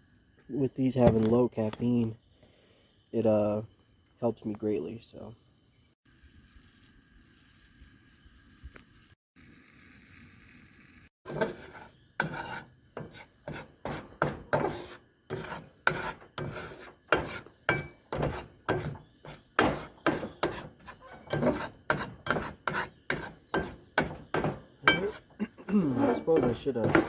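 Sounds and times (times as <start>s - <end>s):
metal spatula scraping frying pan: 11.3s - 27.0s.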